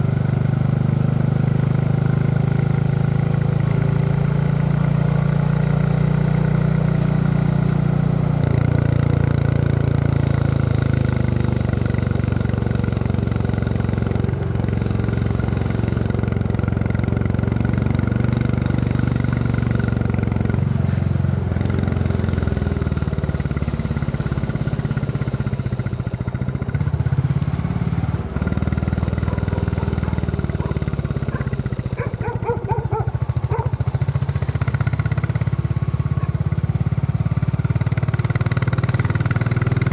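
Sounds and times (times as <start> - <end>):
motorcycle engine thumping: 25.6 - 34.5.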